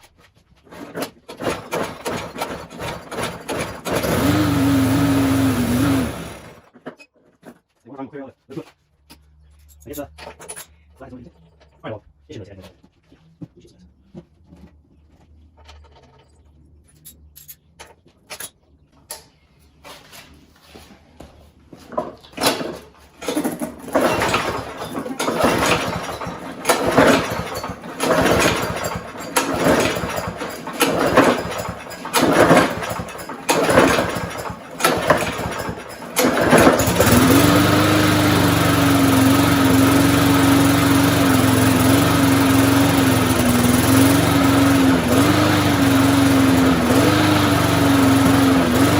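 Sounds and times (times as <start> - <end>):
lawnmower engine cranking: 0.6 - 7.0, 21.8 - 48.9
lawnmower engine running: 0.7 - 6.7, 21.8 - 48.9.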